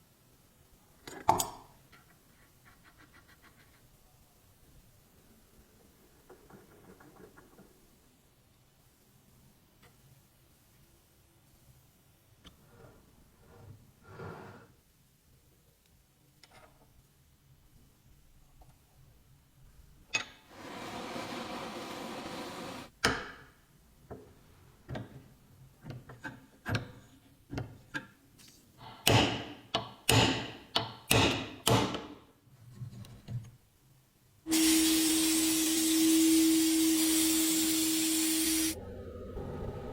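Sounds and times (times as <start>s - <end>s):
steady hum with hiss: 3.7s - 23.0s, 33.7s - 38.8s
scraping or rubbing: 20.5s - 22.9s
sharp hammer strikes: 30.1s - 32.0s.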